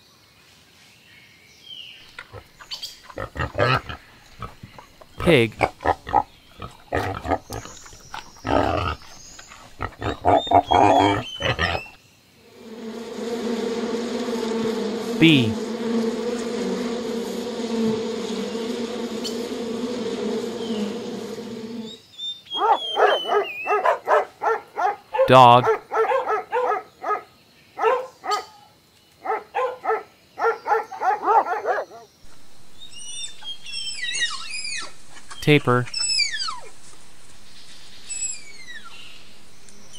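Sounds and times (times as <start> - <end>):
steady hiss: 2.1 - 11.9, 12.5 - 22.0, 32.2 - 39.9
bees buzzing: 2.1 - 22.0, 32.3 - 39.9
pigs squealing: 3.1 - 4.6, 5.6 - 12.0
pigs grunting: 3.1 - 12.0
dog barking: 22.6 - 28.5, 29.2 - 32.1.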